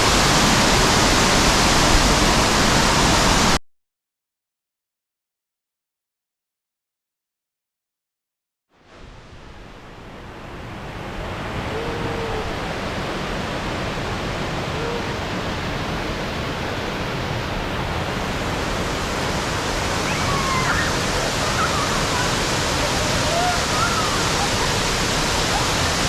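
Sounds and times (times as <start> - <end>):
waterfall rushing: 0.0 - 3.6, 10.2 - 26.0.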